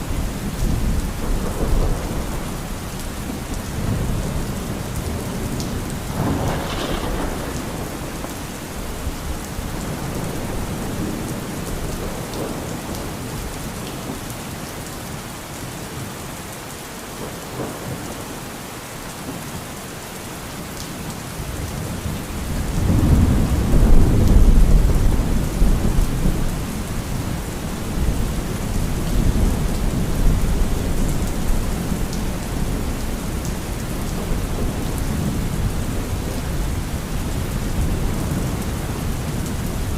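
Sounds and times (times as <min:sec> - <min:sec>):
heavy rain: 0:00.0 - 0:39.9
deep roll of thunder: 0:03.6 - 0:13.1, 0:22.5 - 0:26.6
thunder crack: 0:06.1 - 0:11.3.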